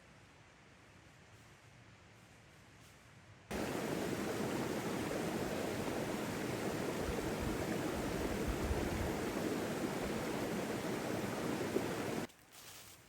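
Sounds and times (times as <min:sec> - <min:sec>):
rushing river water: 0:03.5 - 0:12.3.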